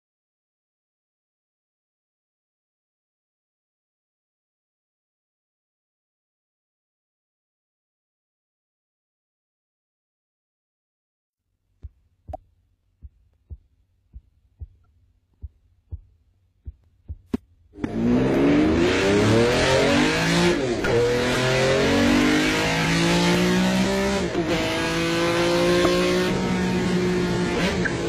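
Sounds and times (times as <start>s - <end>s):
road and tyre noise: 17.3s - 28.0s
car engine accelerating hard: 17.8s - 28.0s.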